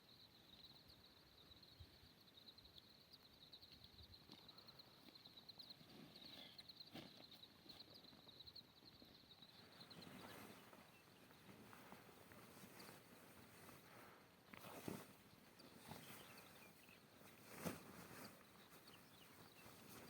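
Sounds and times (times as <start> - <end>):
rustling: 10.0 - 20.0.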